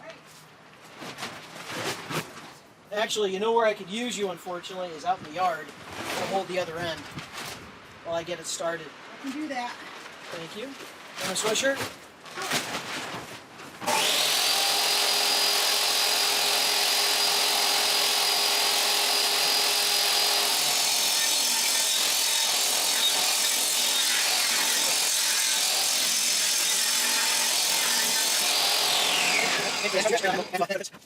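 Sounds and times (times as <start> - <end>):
power tool motor whine: 13.8 - 30.5.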